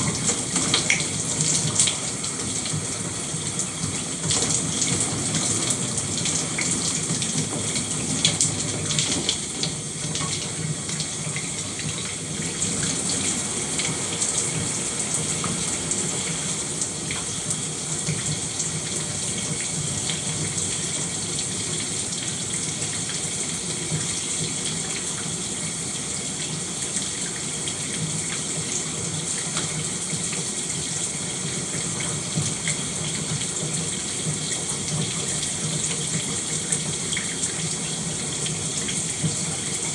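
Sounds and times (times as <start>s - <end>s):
shower water spraying: 0.0s - 26.8s.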